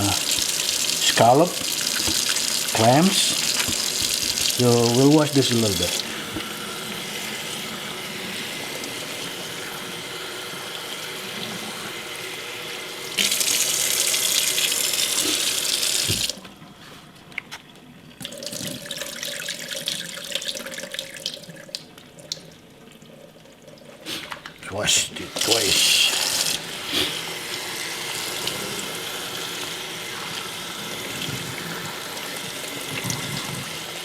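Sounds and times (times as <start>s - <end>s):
tap running into sink: 0.0s - 6.6s, 15.2s - 16.4s, 32.8s - 33.8s
wet seafood clicking and clattering: 3.2s - 4.6s.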